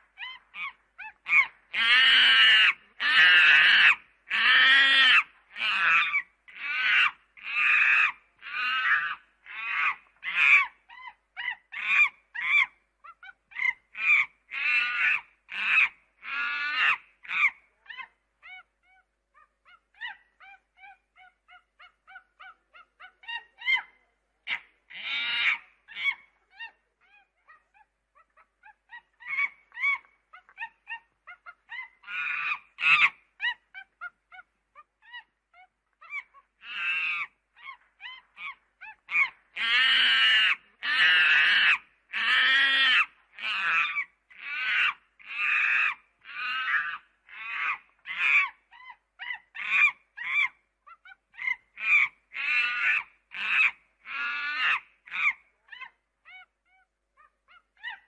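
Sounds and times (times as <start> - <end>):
monkey calling: 0.0 - 58.0.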